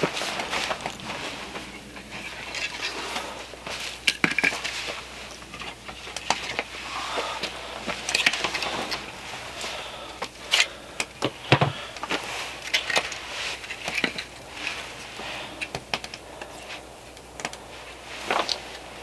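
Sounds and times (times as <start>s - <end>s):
firewood clicking and knocking: 4.0s - 4.8s, 10.1s - 14.7s.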